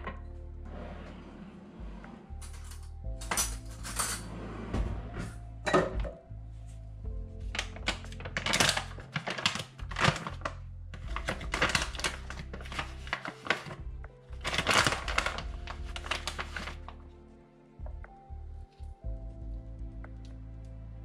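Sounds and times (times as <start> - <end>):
soft background music: 0.0 - 21.0
dishes and utensils clattering: 2.4 - 4.4, 5.6 - 6.2.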